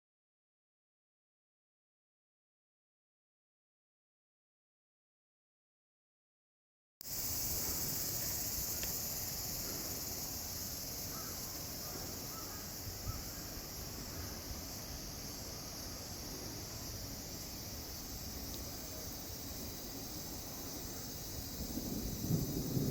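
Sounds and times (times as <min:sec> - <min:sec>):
faint chirps: 0:07.0 - 0:22.9
insects chorus: 0:07.0 - 0:22.9.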